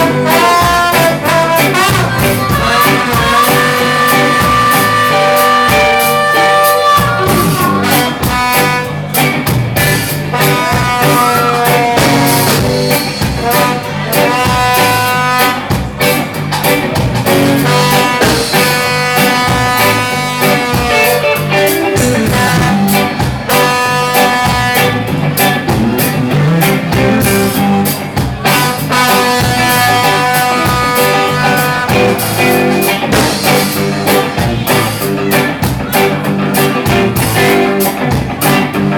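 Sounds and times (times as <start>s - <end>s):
guitar lead held notes: 0.0s - 38.9s
rock band playing: 0.0s - 38.9s.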